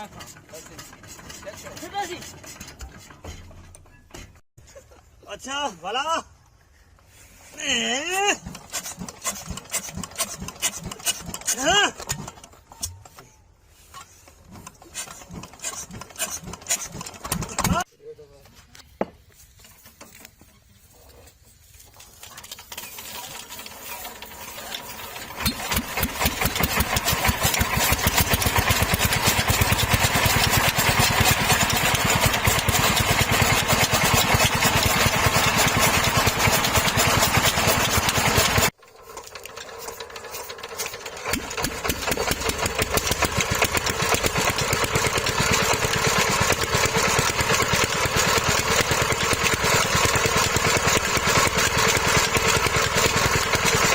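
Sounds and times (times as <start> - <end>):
diesel engine starting and running: 0.0 - 4.4, 8.2 - 17.9, 22.0 - 53.9.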